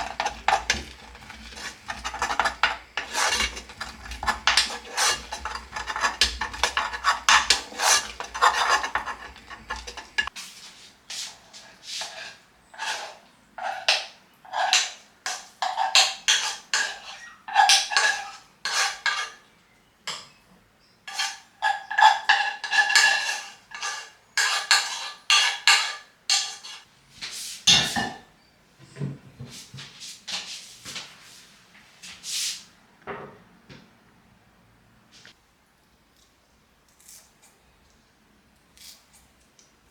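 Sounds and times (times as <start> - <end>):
dishes and utensils clattering: 0.0 - 10.3, 12.8 - 19.5, 21.1 - 26.9, 27.7 - 28.3.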